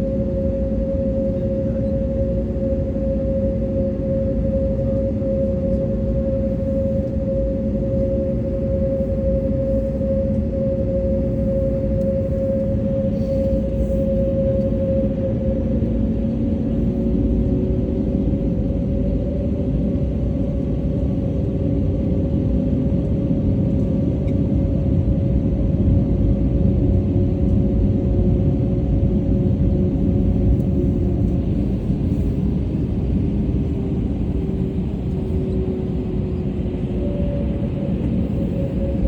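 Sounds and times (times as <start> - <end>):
low machinery rumble: 0.0 - 24.6.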